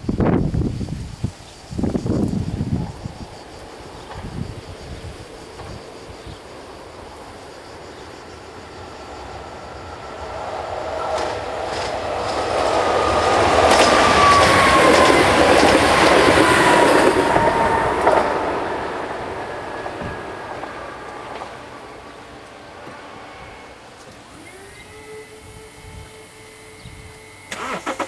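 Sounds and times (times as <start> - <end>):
train passing on rails: 0.0 - 27.8
high whine sliding down: 7.1 - 27.8
sharp rail clacks: 13.6 - 18.4.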